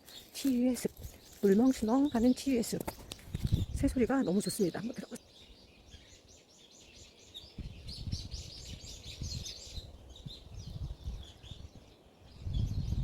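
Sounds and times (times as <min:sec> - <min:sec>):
birds chirping and singing: 0:00.0 - 0:13.0
wind rumbling on microphone: 0:00.6 - 0:04.6, 0:07.0 - 0:13.0.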